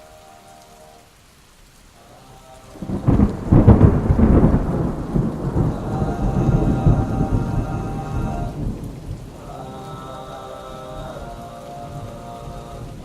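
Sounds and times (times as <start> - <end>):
faint steady tones: 0.0 - 13.0
rain: 0.0 - 13.0
thunder rumbling: 2.6 - 10.1.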